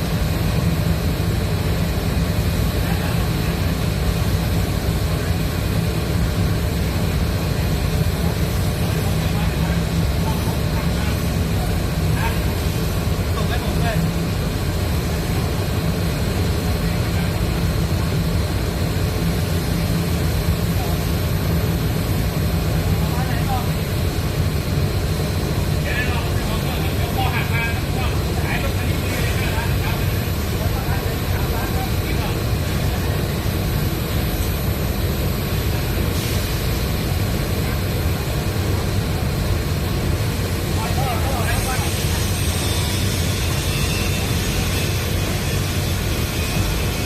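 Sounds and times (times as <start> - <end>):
crane engine running: 0.0 - 47.0.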